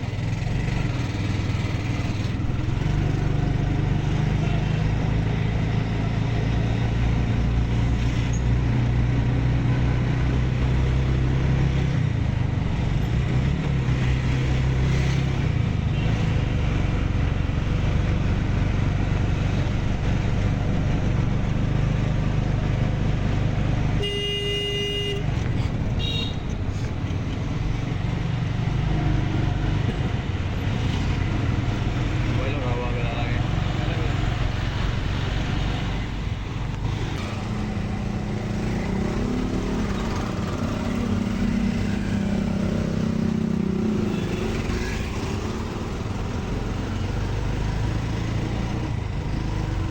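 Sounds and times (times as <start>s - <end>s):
road noise: 0.0s - 49.9s
vehicle horn: 24.0s - 25.4s, 26.0s - 26.5s.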